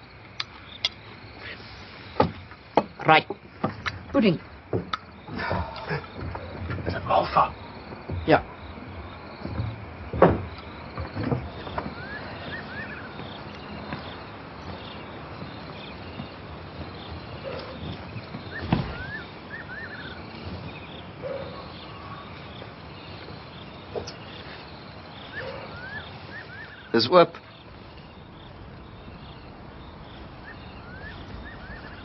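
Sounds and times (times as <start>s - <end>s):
steady hiss: 0.0s - 32.0s
sharp knocks: 2.2s - 12.1s
animal calling with rising chirps: 11.6s - 13.9s, 17.3s - 32.0s.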